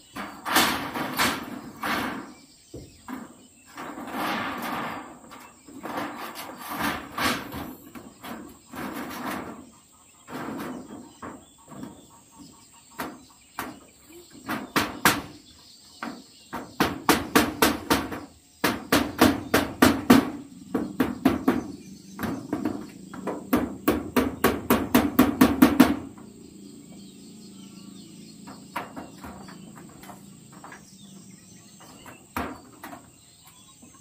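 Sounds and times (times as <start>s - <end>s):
high cricket drone: 19.8s - 31.8s
hammer striking nails: 22.2s - 26.1s.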